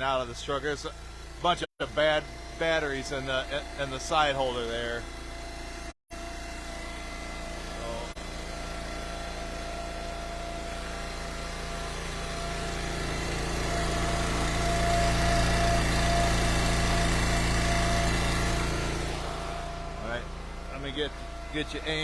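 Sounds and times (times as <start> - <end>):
small gasoline engine running: 0.0 - 22.0.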